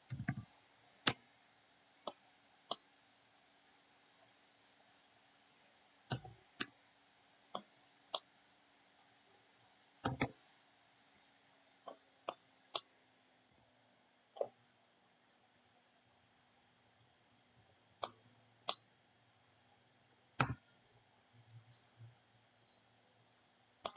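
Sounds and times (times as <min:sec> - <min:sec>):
computer mouse clicks: 0:00.0 - 0:01.2, 0:02.0 - 0:02.9, 0:06.1 - 0:06.8, 0:07.5 - 0:08.3, 0:10.0 - 0:10.4, 0:11.9 - 0:12.9, 0:18.0 - 0:18.9, 0:20.4 - 0:20.7
faint steady hum: 0:00.0 - 0:23.9.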